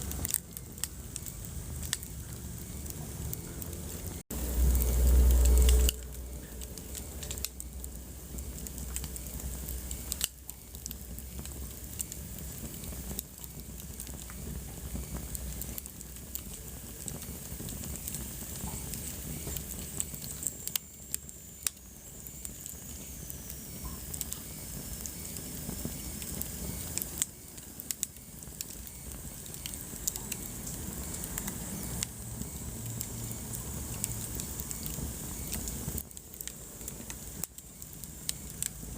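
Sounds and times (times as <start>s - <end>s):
wood fire crackling: 0.0s - 38.9s
loud low rumble: 1.5s - 8.6s.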